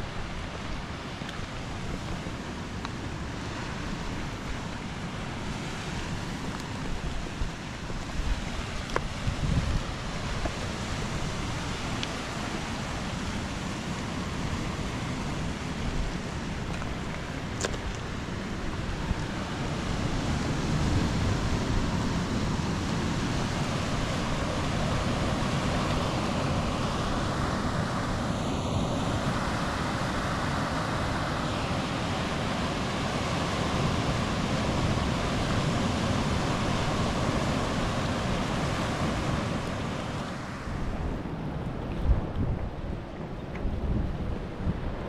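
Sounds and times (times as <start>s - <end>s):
ocean surf breaking: 0.0s - 45.0s
wind on microphone: 0.0s - 45.0s.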